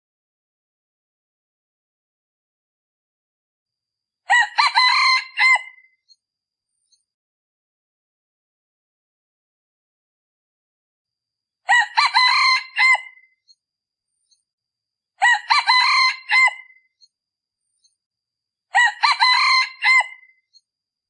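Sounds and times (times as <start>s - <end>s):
rooster crowing: 4.3s - 5.9s, 11.7s - 13.3s, 15.2s - 16.8s, 18.7s - 20.3s.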